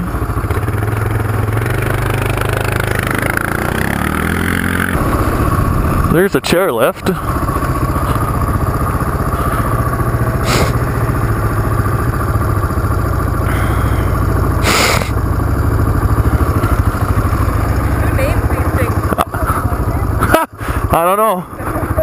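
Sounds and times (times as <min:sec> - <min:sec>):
motorcycle engine running at low speed: 0:00.0 - 0:22.0
short hissing rushes: 0:10.4 - 0:10.8, 0:14.6 - 0:15.2.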